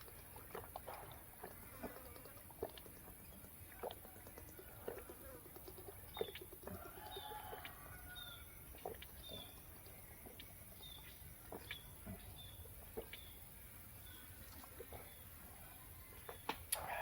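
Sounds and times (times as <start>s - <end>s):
bird chirping: 8.1s - 15.3s.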